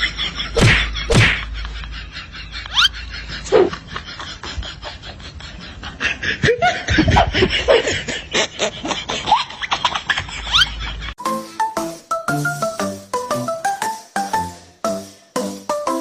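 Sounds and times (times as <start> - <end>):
people laughing and snickering: 0.0 - 11.2
bright jingly tune: 11.2 - 16.0.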